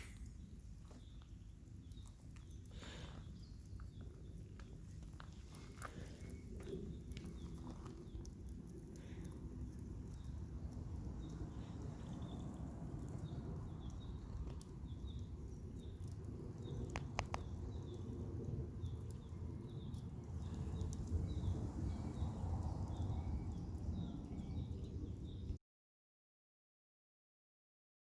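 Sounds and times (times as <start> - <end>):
low rumble: 16.3 - 25.6
sharp clicks: 16.7 - 17.8.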